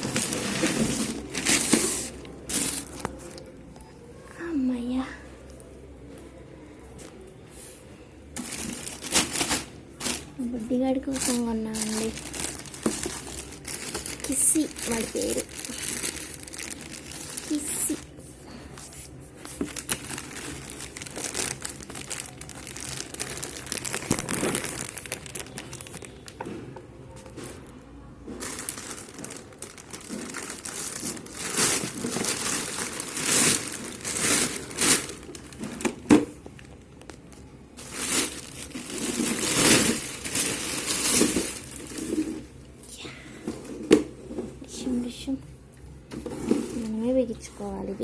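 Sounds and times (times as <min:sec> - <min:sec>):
packaging crinkling and tearing: 0:00.0 - 0:03.5, 0:08.4 - 0:26.4, 0:28.4 - 0:42.4.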